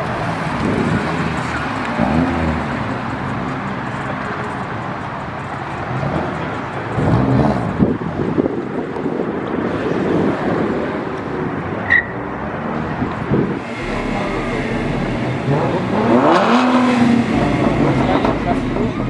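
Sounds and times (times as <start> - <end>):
car engines running: 13.6 - 19.0
outdoor din: 13.6 - 19.0
rising and falling engine notes: 13.6 - 19.0.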